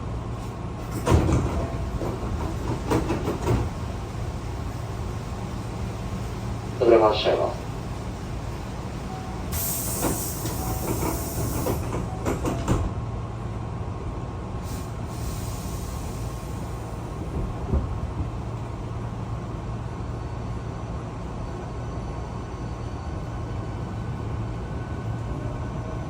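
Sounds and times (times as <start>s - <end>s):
train running hum: 0.0s - 26.0s
train clunks: 0.4s - 4.0s, 9.1s - 13.1s, 14.6s - 18.5s
compressed air hiss: 9.5s - 11.8s, 14.6s - 16.6s.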